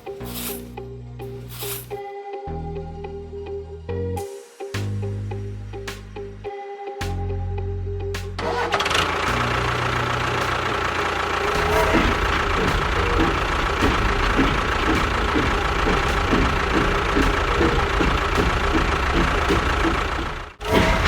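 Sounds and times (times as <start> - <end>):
background music: 0.0 - 21.0
engine running with regular pulse: 8.3 - 21.0.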